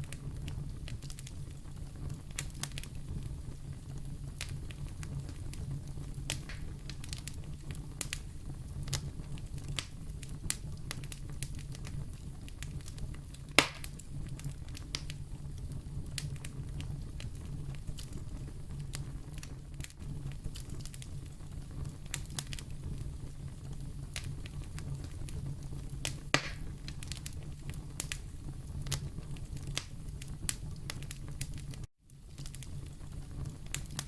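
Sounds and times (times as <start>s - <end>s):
wood fire crackling: 0.0s - 34.0s
loud fire pop: 6.3s - 7.4s, 13.5s - 14.0s, 26.0s - 27.3s.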